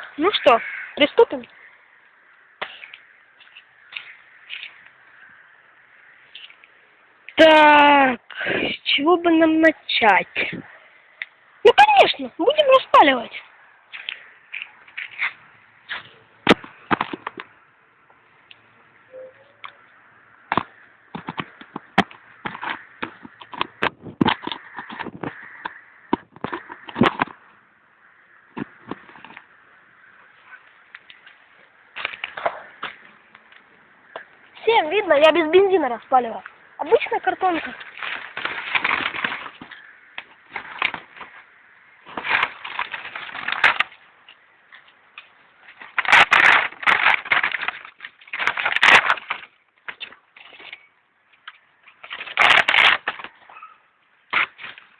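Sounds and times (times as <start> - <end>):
cardboard and kindling rustling: 28.5 - 29.5, 36.4 - 50.9, 51.5 - 53.6
dry sticks snapping: 30.9 - 34.4, 42.1 - 50.8, 51.4 - 53.4.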